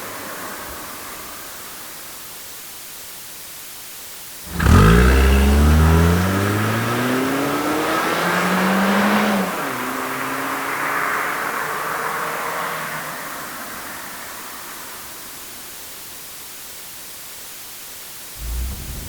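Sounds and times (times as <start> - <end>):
car engine starting and revving: 4.5 - 13.1, 18.4 - 19.0.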